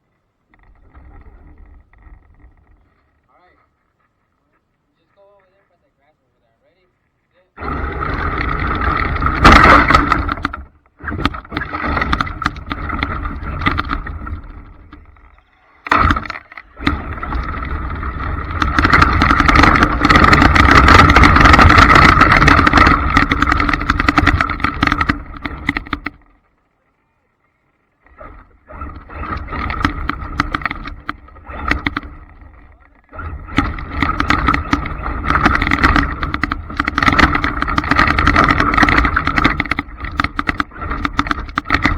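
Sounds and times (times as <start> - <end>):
radio-controlled trucks whining: 28.1 - 41.9.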